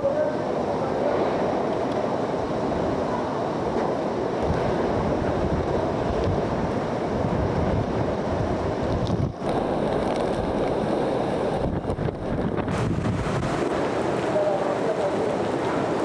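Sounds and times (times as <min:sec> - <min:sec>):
strong wind on microphone: 0:02.2 - 0:14.4.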